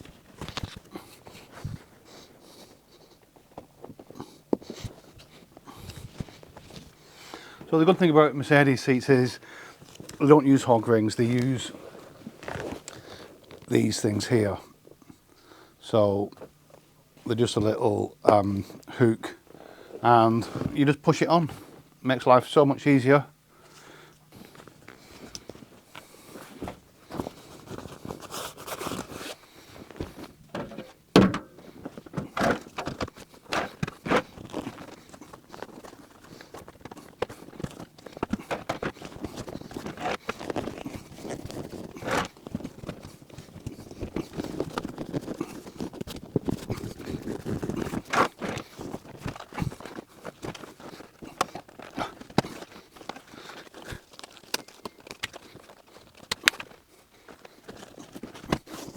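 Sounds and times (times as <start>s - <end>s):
fabric rustling: 11.6s - 13.7s.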